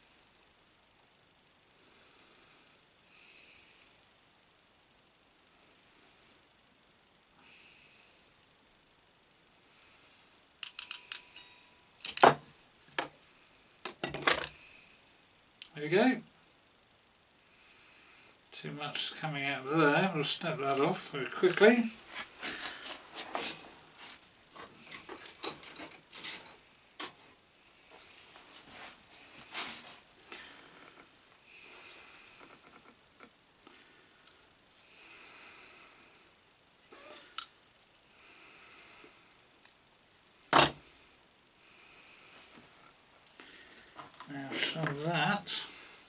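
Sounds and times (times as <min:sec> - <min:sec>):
hands clicking and rustling wiring: 0:10.6 - 0:13.2.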